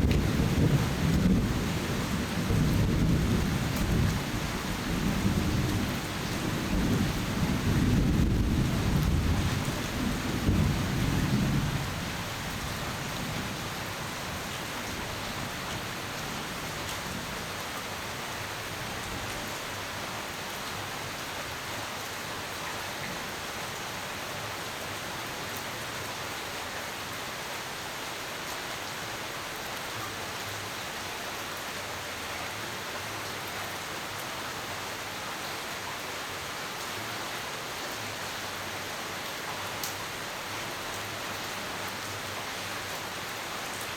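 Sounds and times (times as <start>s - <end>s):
thunder rumbling: 0.0s - 12.0s
rain falling steadily: 0.0s - 43.9s.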